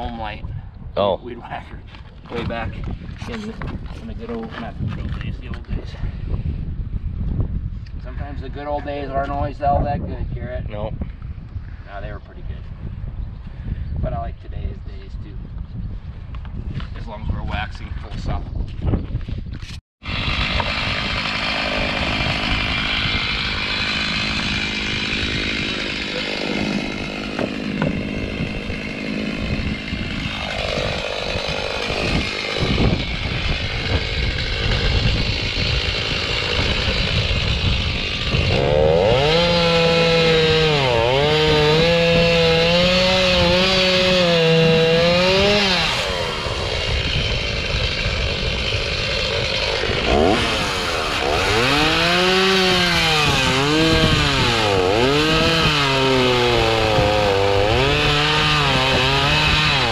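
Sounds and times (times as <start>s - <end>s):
chainsaw cutting wood: 20.0s - 59.9s.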